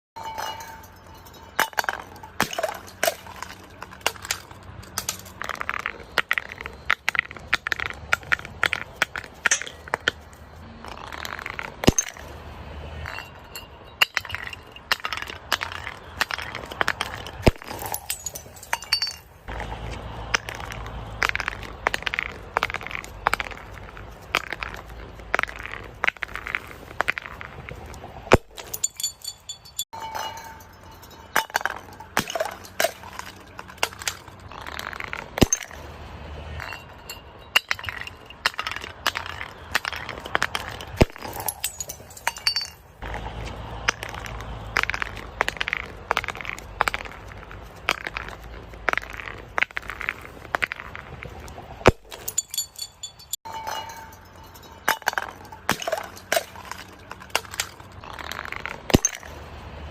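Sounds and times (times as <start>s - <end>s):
glass crushing and breaking: 0.2s - 10.2s, 10.9s - 12.3s, 13.0s - 19.5s, 28.3s - 35.8s, 36.6s - 43.1s, 51.8s - 59.4s.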